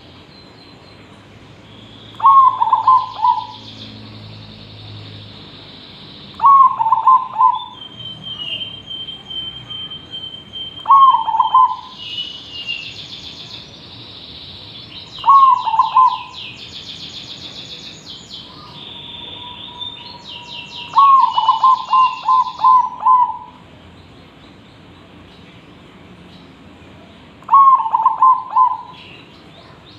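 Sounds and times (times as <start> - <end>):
dove cooing: 2.2 - 3.6, 6.4 - 7.7, 10.9 - 12.0, 15.2 - 16.4, 20.9 - 23.6, 27.5 - 29.0.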